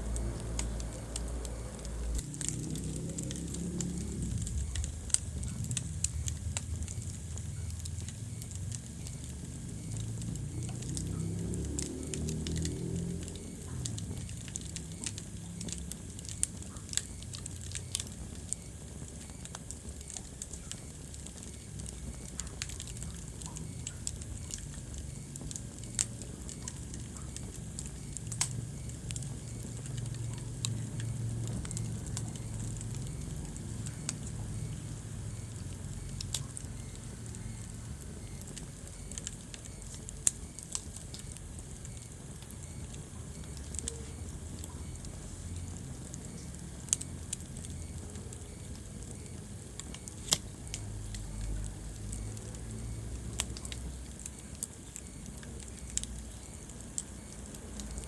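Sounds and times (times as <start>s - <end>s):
sharp pops and snaps: 0.0s - 58.0s
wood fire crackling: 0.0s - 58.0s.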